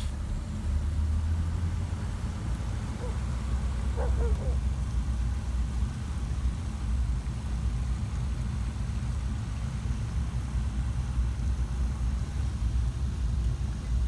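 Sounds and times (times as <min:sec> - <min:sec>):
car engine and road noise: 0:00.0 - 0:06.3.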